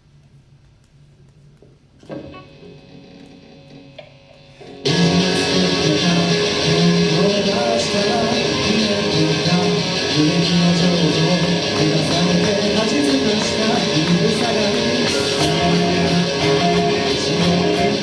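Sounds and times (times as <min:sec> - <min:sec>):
strummed electric guitars: 0:02.0 - 0:18.0
rock band playing live: 0:02.2 - 0:18.0
bass line: 0:04.8 - 0:18.0.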